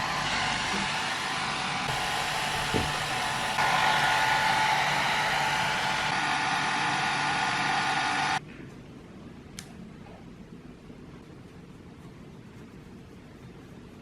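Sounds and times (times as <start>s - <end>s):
hair dryer blowing: 0.0s - 8.4s
brief knock: 2.6s - 3.0s.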